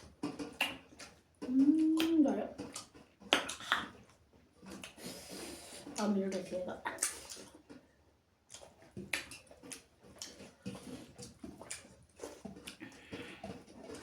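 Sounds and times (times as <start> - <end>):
person chewing with wet smacks: 0.0 - 7.9, 8.5 - 14.0.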